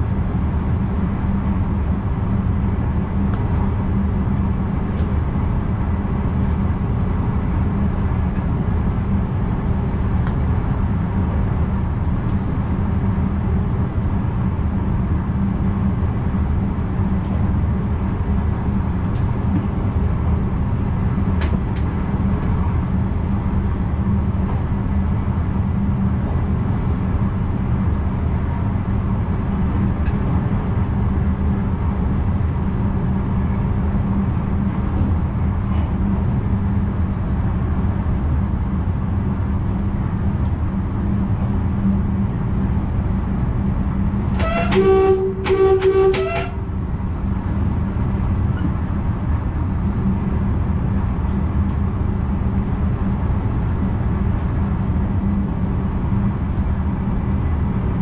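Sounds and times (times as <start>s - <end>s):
train wheels rumbling: 40.5s - 52.8s.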